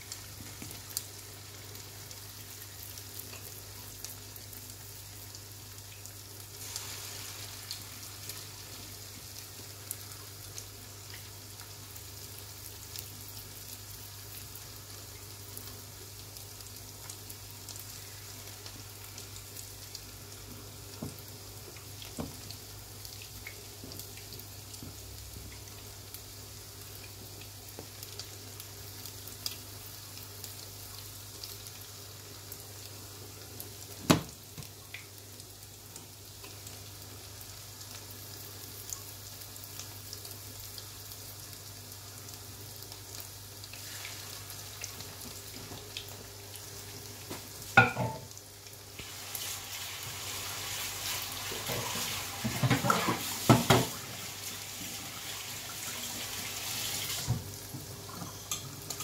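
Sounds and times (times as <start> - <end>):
meat sizzling in oil: 0.0 - 59.0.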